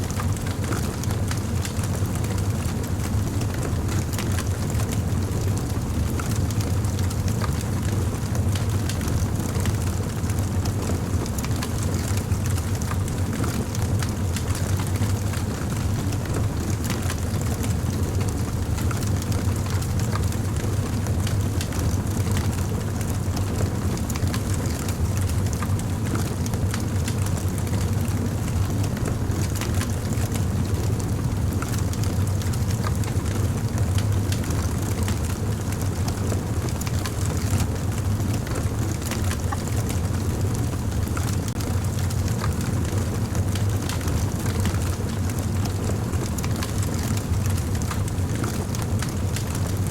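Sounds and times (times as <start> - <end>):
fire burning rumble: 0.0 - 49.9
fire popping and crackling: 0.1 - 49.8.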